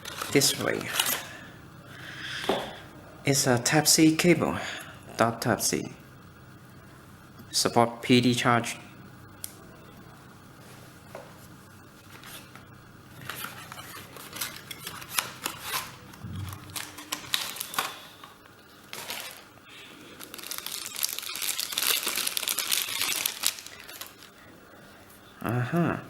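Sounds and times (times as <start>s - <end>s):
plastic wrapper crinkling: 0.0s - 1.3s, 13.2s - 18.2s, 18.9s - 24.4s.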